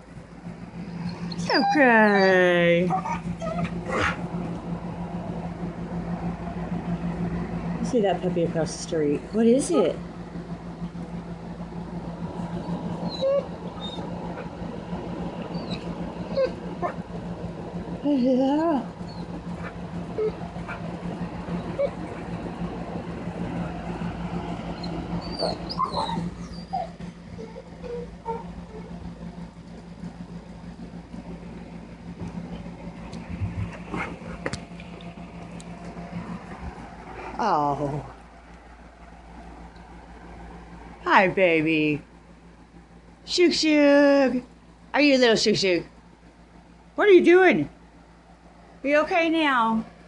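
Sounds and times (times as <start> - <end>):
steady low hum: 0.0 - 50.0
dog whining: 1.0 - 4.2, 12.5 - 14.1, 15.5 - 17.0, 18.6 - 20.8, 21.6 - 22.2, 24.8 - 29.0.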